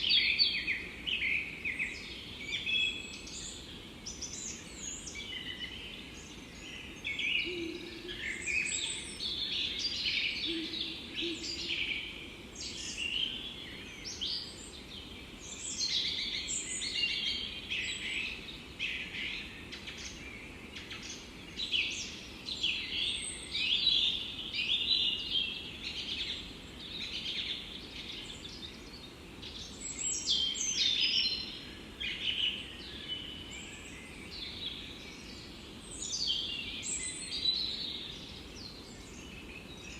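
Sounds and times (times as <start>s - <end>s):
soft forest background hiss: 0.0s - 39.9s
songbirds singing and chirping: 0.0s - 39.9s.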